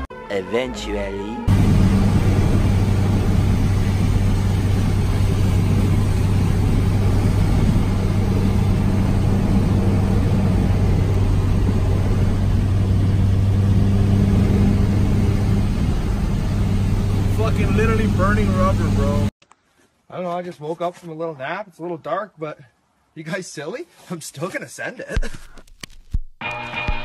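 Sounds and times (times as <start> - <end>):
car engine droning: 1.5 - 19.3.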